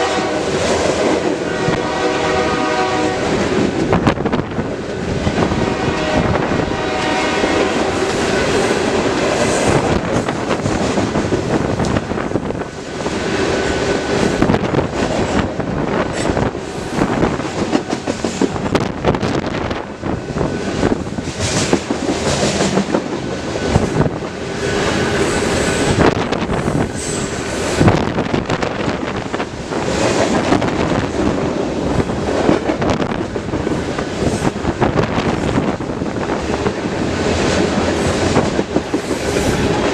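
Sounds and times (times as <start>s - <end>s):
train horn: 0.0s - 3.7s, 5.4s - 8.8s, 39.0s - 39.9s
freight train rumble: 0.0s - 39.9s
train wheels clattering over rail joints: 7.0s - 39.9s.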